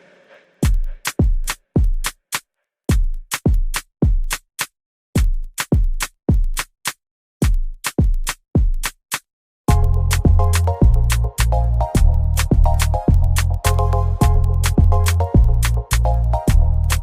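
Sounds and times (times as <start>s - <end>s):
drum machine kick beat: 0.6s - 17.0s.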